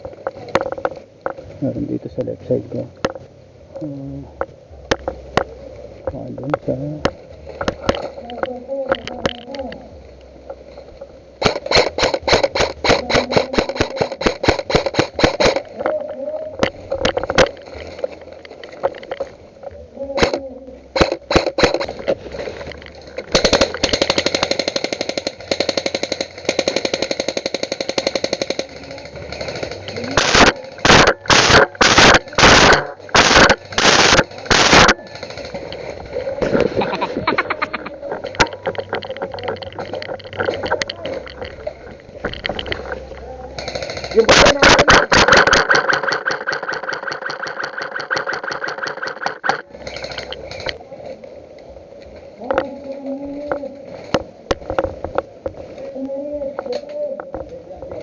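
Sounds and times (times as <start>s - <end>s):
airsoft rifle firing: 11.4s - 15.9s, 21.0s - 22.0s, 23.2s - 36.7s, 43.6s - 50.6s
airsoft rifle full-auto firing: 23.3s - 35.6s.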